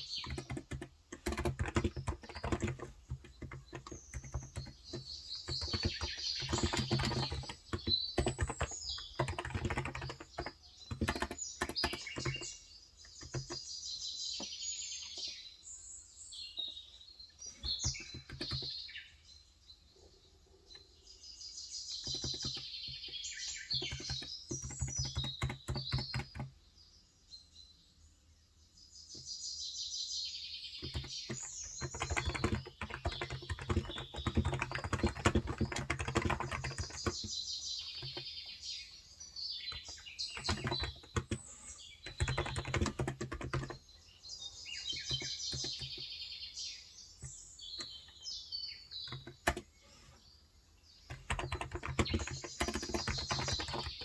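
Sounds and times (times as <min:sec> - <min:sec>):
typing on a keyboard: 0:00.0 - 0:13.7, 0:17.6 - 0:18.8, 0:21.9 - 0:26.6, 0:30.8 - 0:38.4, 0:39.6 - 0:43.9, 0:44.8 - 0:46.2, 0:48.9 - 0:49.7, 0:51.1 - 0:54.0
birds chirping: 0:00.0 - 0:54.0.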